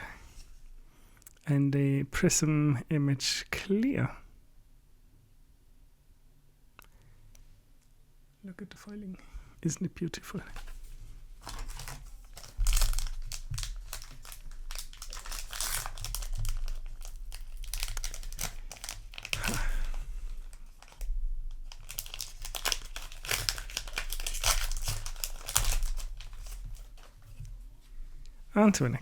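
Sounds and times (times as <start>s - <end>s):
low electrical hum: 0.0s - 29.0s
foil wrapper crinkling and tearing: 10.5s - 27.2s.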